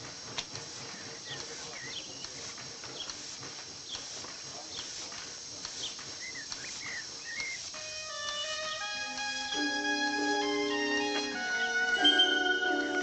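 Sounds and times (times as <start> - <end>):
birds chirping: 0.0 - 13.0
steady hiss: 0.0 - 13.0
faint clicks: 0.3 - 8.5.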